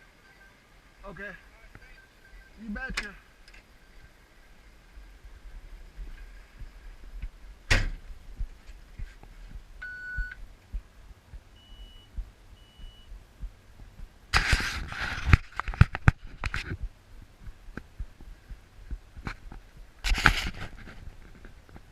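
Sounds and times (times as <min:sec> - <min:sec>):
electronic beeps: 0:00.0 - 0:03.2, 0:09.8 - 0:10.4, 0:11.5 - 0:13.2
sharp thunk: 0:07.7 - 0:08.0.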